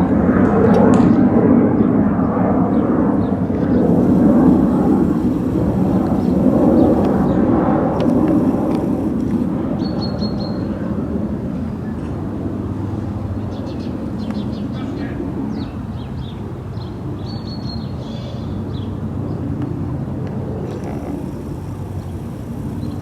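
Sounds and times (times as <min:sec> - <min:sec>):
loud low rumbling: 0:02.7 - 0:10.2.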